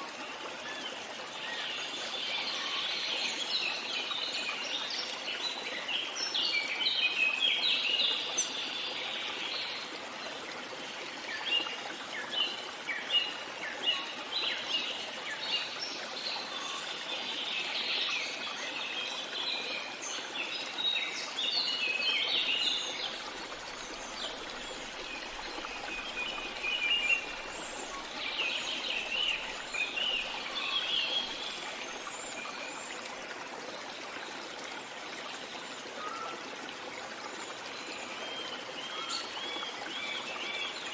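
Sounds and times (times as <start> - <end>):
babbling stream: 0.0 - 40.9.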